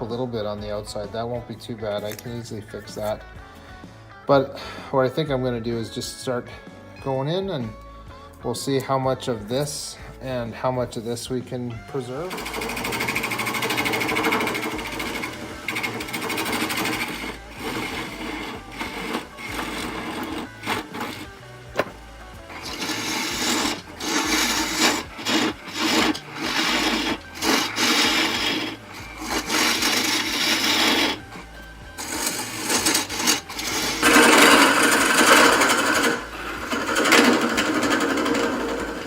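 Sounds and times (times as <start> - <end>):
lathe tool scraping wood: 0.0 - 3.8, 8.6 - 39.0
lathe motor hum: 12.2 - 39.0.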